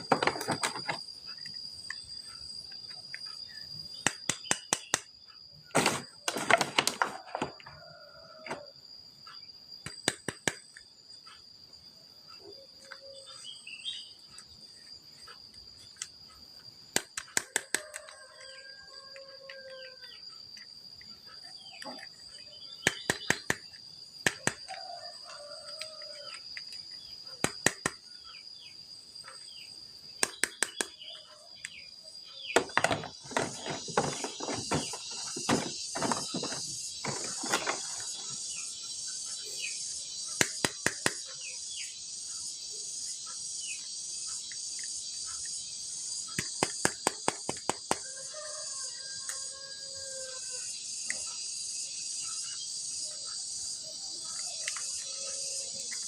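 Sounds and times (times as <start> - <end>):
sharp clicks and taps: 4.0 - 5.2, 9.8 - 10.9, 16.9 - 18.2, 22.8 - 24.7, 27.4 - 28.0, 30.2 - 31.8, 40.4 - 41.3, 46.4 - 48.0.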